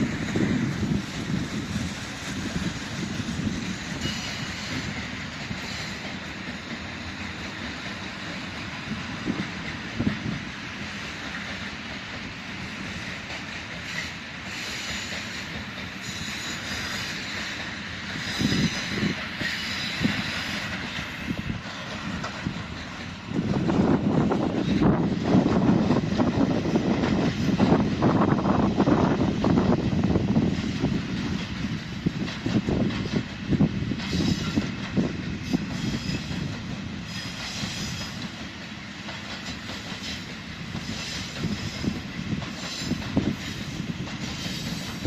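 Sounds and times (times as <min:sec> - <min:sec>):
freight train rolling past: 0:00.0 - 0:45.0
high wheel squeal: 0:04.0 - 0:05.0, 0:13.9 - 0:21.4, 0:35.4 - 0:38.2.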